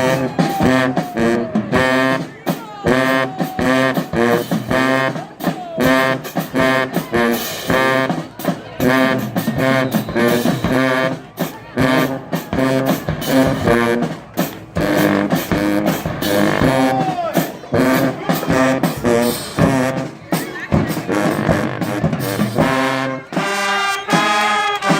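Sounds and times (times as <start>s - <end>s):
brass notes: 0.0s - 24.9s
steady drum beat: 0.0s - 24.9s.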